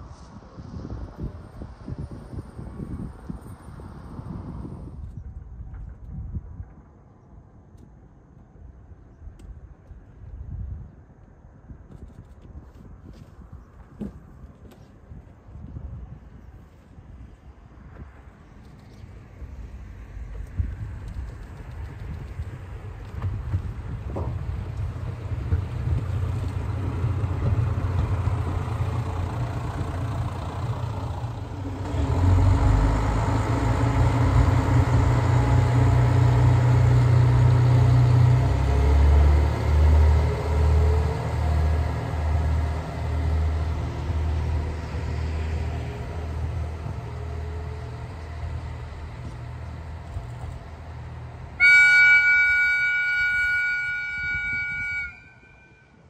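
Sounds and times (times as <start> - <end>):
diesel train engine revving: 19.4 - 56.0
train whistle chord: 51.6 - 56.0.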